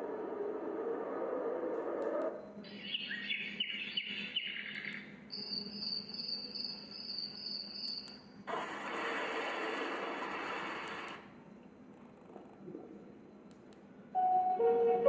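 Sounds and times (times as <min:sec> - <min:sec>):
chirping birdsong: 0:00.0 - 0:08.3
high cricket trill: 0:05.3 - 0:08.4
wide hiss: 0:08.5 - 0:11.2.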